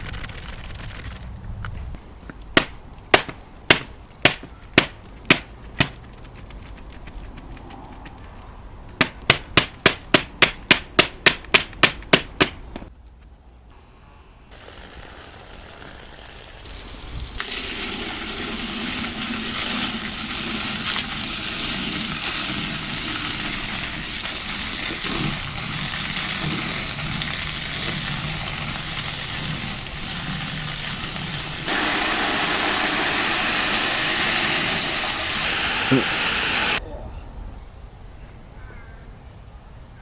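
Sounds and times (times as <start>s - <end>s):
hissing rushing noise: 23.5s - 36.8s.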